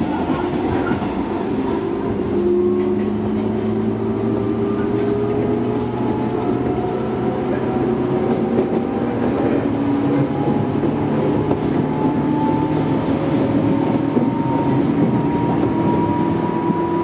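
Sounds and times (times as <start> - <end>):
electric train rumbling on rails: 0.0 - 17.0.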